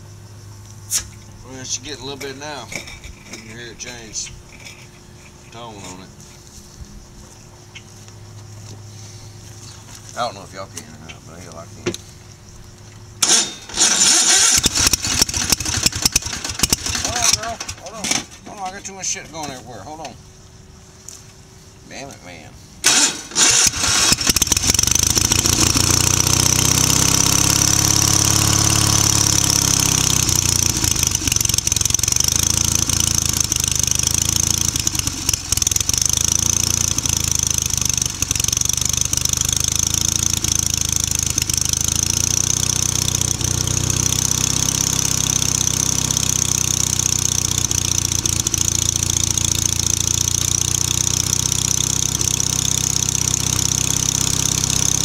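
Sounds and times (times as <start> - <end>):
tractor engine running unevenly: 12.9 - 18.9, 22.8 - 55.0.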